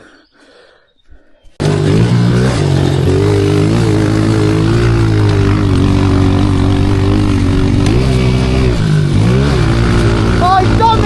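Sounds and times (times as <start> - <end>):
motorbike engine running hard: 1.6 - 11.0.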